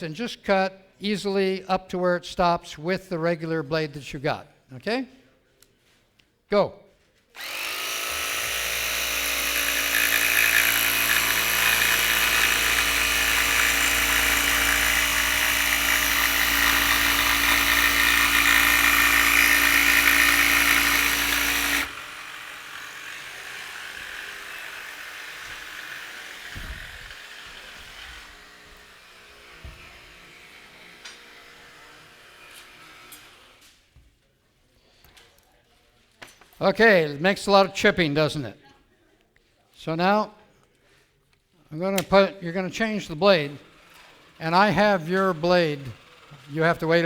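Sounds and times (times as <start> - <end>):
faint tool sound: 6.9 - 36.6
jigsaw cutting wood: 7.3 - 33.6, 42.9 - 47.0.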